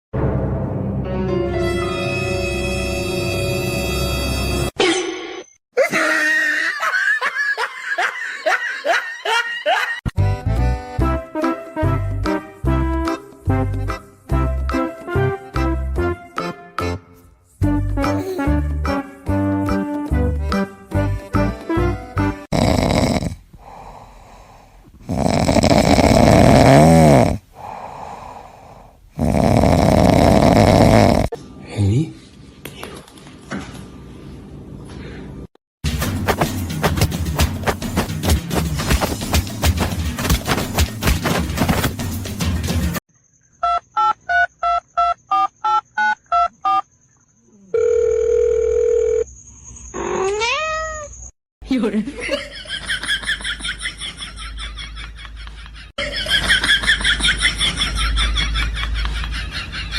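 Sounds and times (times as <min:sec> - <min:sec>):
music: 0:00.2 - 0:04.8, 0:10.2 - 0:22.5, 0:35.8 - 0:43.0
loud snoring: 0:22.4 - 0:31.4
quieter breath: 0:23.6 - 0:25.0, 0:27.5 - 0:29.1.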